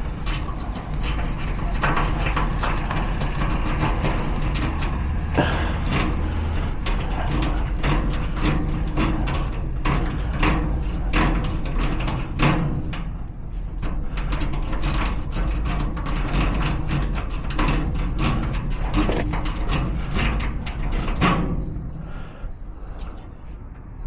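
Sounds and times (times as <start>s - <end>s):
lock picking clicks and scrapes: 13.8s - 21.4s.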